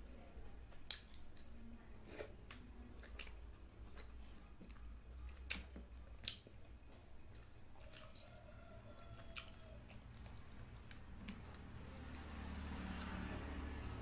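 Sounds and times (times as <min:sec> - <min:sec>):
close-up chewing: 0:00.7 - 0:14.0
wet mouth clicks and smacks: 0:00.8 - 0:01.5, 0:02.5 - 0:06.5.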